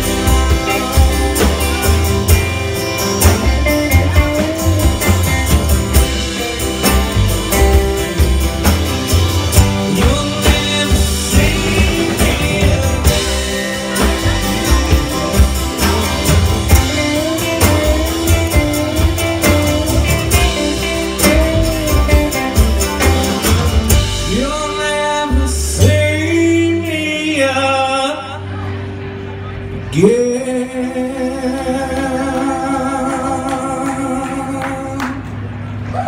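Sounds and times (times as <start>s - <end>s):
steady drum beat: 0.0s - 26.3s
band playing and singing: 0.0s - 35.6s.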